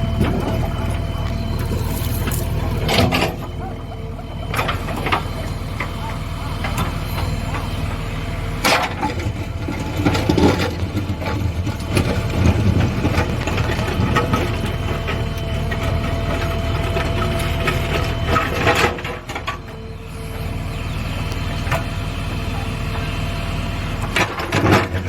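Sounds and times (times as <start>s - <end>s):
diesel engine rumbling: 0.0s - 25.0s.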